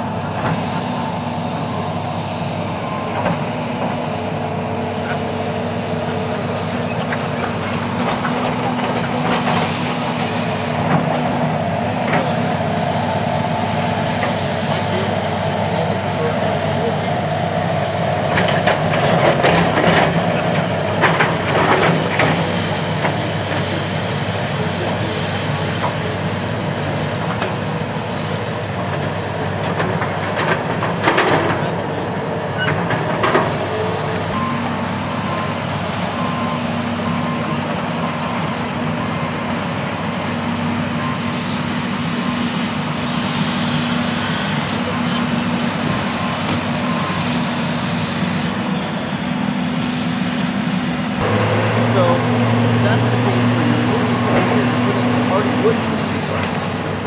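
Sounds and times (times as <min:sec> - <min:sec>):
diesel engine running: 0:00.0 - 0:57.0
reversing alarm beeping: 0:00.9 - 0:07.0, 0:33.6 - 0:39.5, 0:40.9 - 0:42.8, 0:44.0 - 0:48.8.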